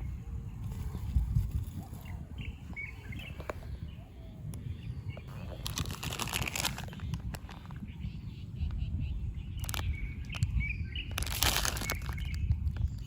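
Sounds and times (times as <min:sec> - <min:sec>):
bird chirps: 0:07.8 - 0:13.0.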